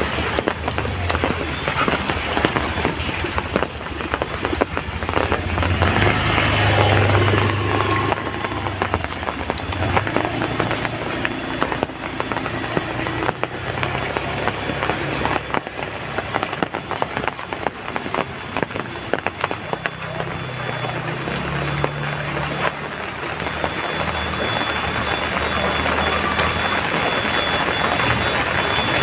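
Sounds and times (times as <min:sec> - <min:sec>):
heavy rain on hard surfaces: 0:00.0 - 0:29.0.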